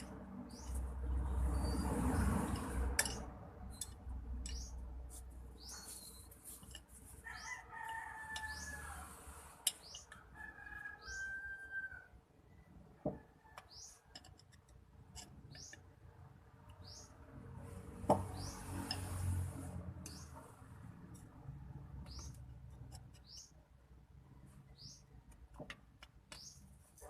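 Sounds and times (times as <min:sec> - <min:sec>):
high bird chirps: 0:03.8 - 0:04.9, 0:05.6 - 0:06.3.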